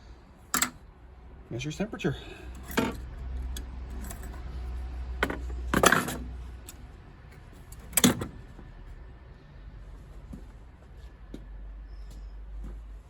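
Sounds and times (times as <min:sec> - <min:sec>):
clicks of boiler parts handled: 0:00.5 - 0:00.8.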